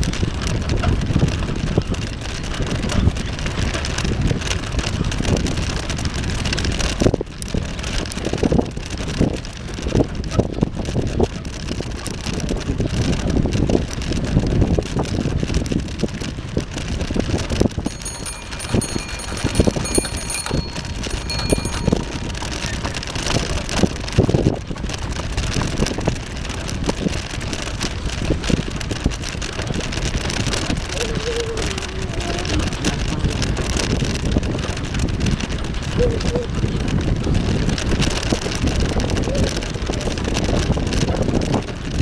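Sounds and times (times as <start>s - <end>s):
bicycle knocks and rattles: 17.8s - 23.2s.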